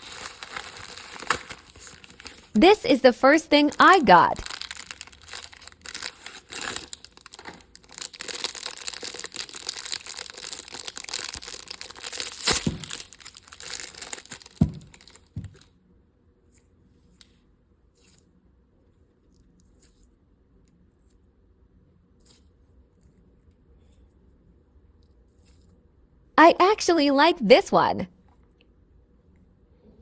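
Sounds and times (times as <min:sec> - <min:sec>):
packaging crinkling and tearing: 0:00.0 - 0:02.6, 0:03.7 - 0:15.7.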